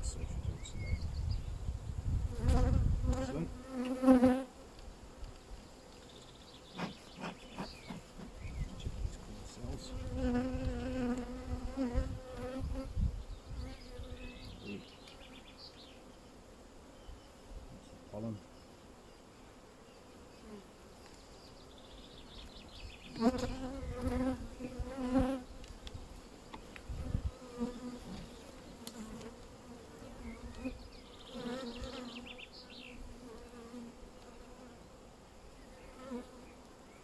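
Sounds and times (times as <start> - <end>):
honeybees buzzing: 1.5 - 37.0
bees flying past microphone: 2.1 - 4.5, 9.8 - 14.4, 23.1 - 25.6.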